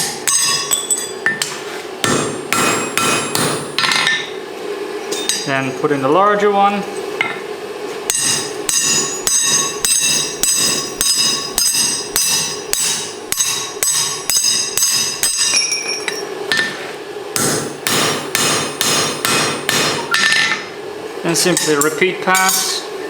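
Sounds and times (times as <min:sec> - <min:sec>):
hammer ringing on anvil: 0:00.0 - 0:04.3, 0:08.1 - 0:16.7, 0:17.4 - 0:20.6, 0:21.5 - 0:22.8.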